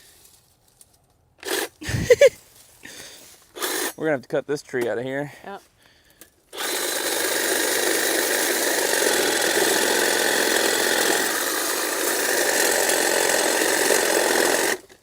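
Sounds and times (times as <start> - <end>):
power saw cutting wood: 1.4 - 1.7, 3.6 - 4.0, 6.5 - 15.0.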